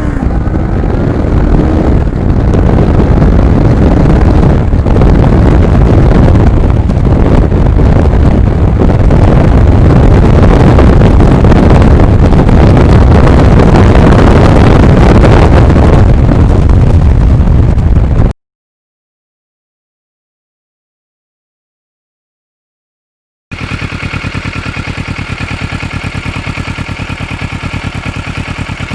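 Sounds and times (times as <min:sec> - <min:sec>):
motorcycle riding: 0:00.0 - 0:18.3, 0:23.5 - 0:28.9
wind rushing over microphone: 0:00.0 - 0:18.4.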